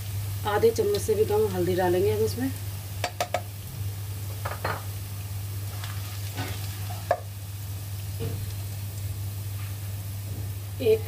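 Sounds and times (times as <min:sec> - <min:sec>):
onions sizzling in a pan: 0:00.0 - 0:11.0.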